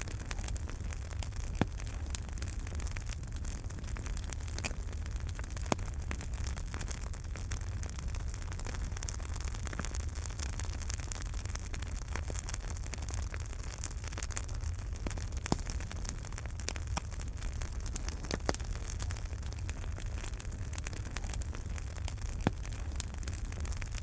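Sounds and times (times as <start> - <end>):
fire crackling and popping: 0.0 - 24.0
fire low rumble: 0.0 - 24.0.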